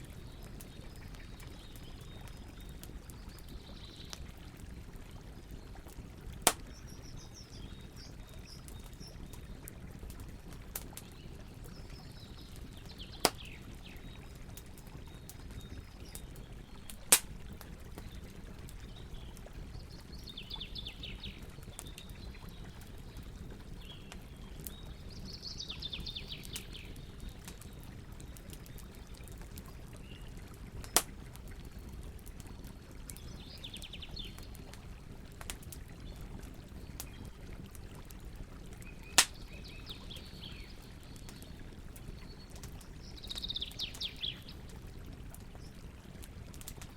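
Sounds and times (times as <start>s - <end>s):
campfire burning: 0.0s - 46.9s
wood crackling pops: 6.4s - 6.9s, 13.2s - 13.6s, 16.1s - 18.1s, 30.8s - 31.4s, 39.2s - 39.5s
birds singing trills: 6.6s - 9.6s, 18.0s - 29.0s, 38.8s - 44.6s.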